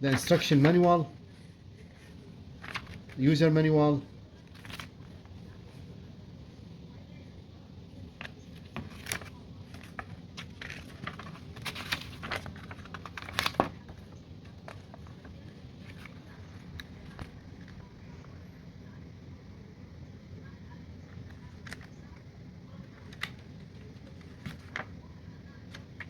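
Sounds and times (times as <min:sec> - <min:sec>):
paper rustling and crinkling: 0:00.0 - 0:03.4, 0:04.4 - 0:05.8, 0:08.2 - 0:17.9, 0:21.1 - 0:26.0.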